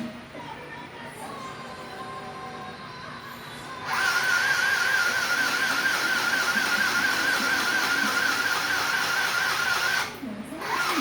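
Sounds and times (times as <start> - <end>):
loud buzzing noise: 3.8 - 11.0
sewing machine motor whine: 3.8 - 11.0.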